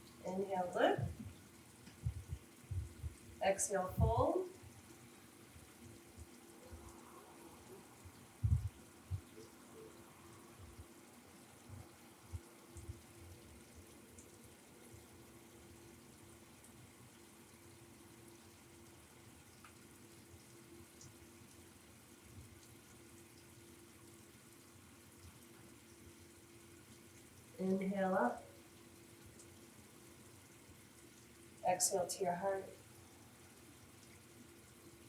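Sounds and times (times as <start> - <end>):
faint steady hum: 0.0 - 35.0
soft low thumps: 1.9 - 3.3, 8.4 - 9.3.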